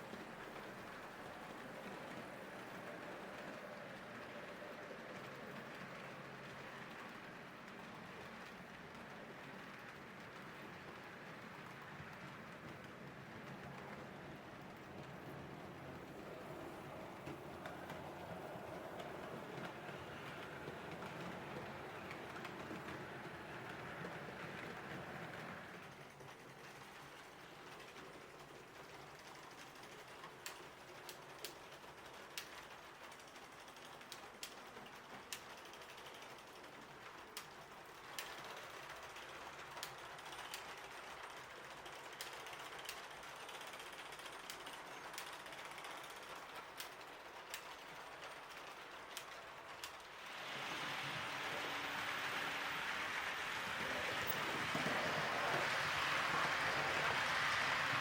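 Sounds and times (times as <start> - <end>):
model train whirring: 0.0 - 58.0
wheels clicking over rail joints: 0.0 - 58.0.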